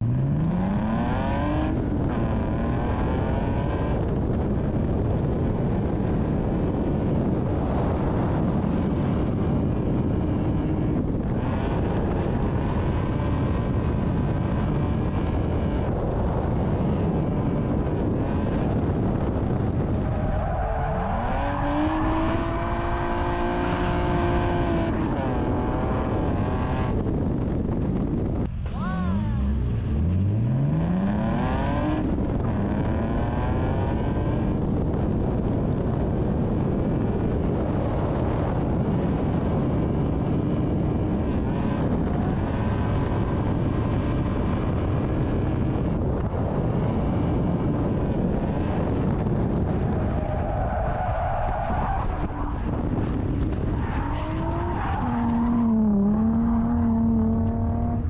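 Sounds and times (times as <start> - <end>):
car engine revving: 0.0 - 58.0
tire noise: 0.0 - 58.0.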